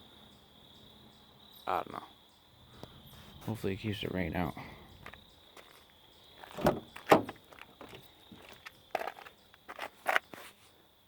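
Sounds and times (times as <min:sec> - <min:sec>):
knocks and clunks inside a car: 0:06.6 - 0:08.0.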